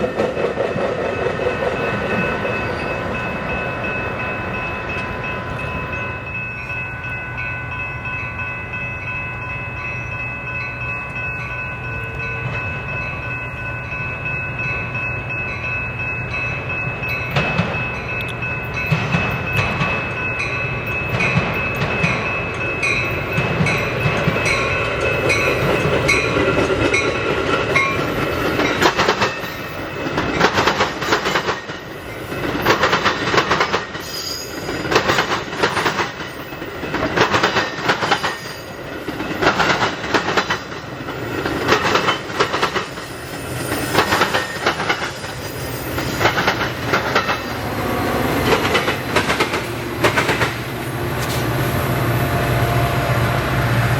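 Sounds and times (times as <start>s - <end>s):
train wheels clacking over rail joints: 0.0s - 2.6s, 17.3s - 18.0s, 18.8s - 20.3s, 20.9s - 51.6s.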